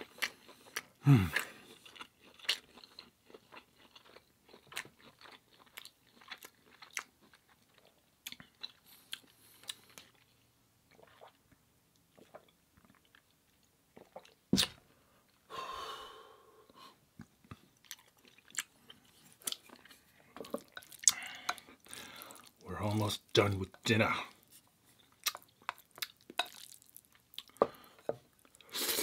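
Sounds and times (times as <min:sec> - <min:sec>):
noisy mouth sound: 0:01.0 - 0:01.7
wet chewing: 0:17.5 - 0:22.6, 0:24.4 - 0:27.6.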